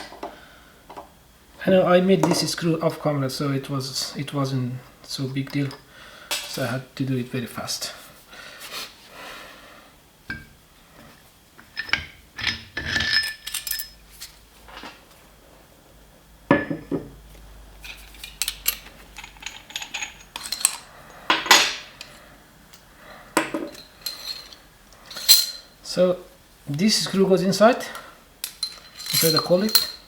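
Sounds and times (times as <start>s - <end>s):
metal parts clinking: 11.6s - 14.0s, 17.8s - 22.2s, 23.4s - 25.8s, 28.4s - 30.0s.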